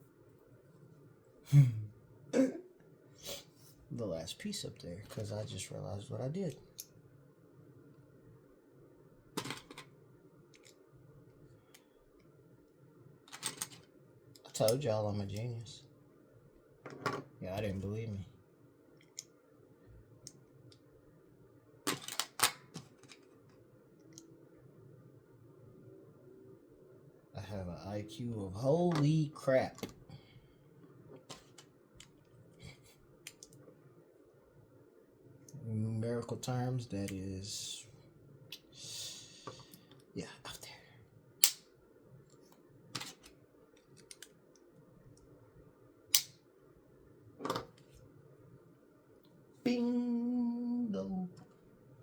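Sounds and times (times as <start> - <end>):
plastic brick snap: 41.4 - 41.6.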